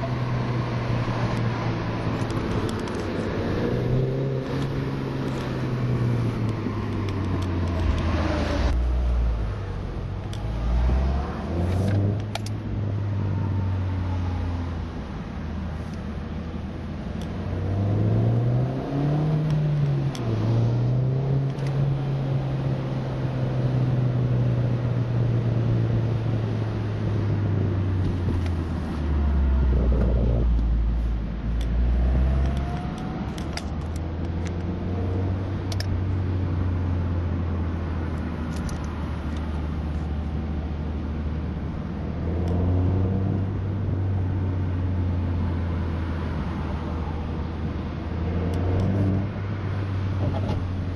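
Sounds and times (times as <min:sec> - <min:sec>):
car engine revving: 0:17.1 - 0:30.9, 0:41.6 - 0:47.5, 0:48.1 - 0:50.9.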